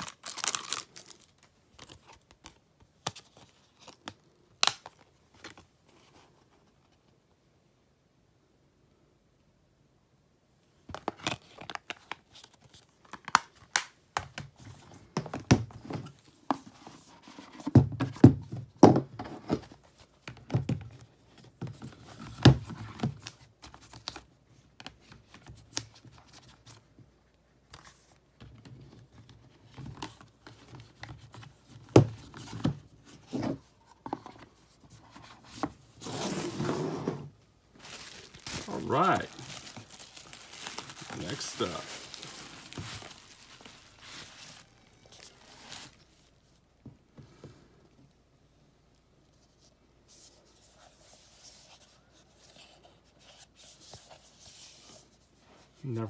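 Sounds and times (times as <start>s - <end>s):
plastic packaging crinkling and tearing: 0.0s - 2.3s, 37.8s - 46.4s.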